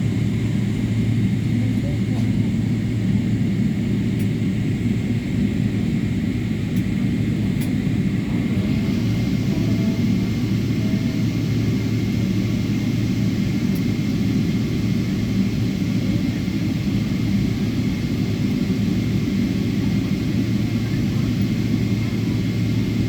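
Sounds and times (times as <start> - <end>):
airliner cabin rumble: 0.0 - 23.0.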